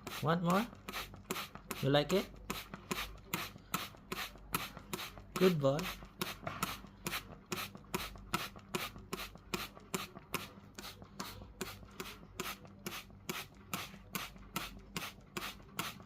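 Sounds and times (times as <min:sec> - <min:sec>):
spray bottle hissing: 0:00.9 - 0:01.8, 0:02.5 - 0:05.2, 0:05.8 - 0:16.0.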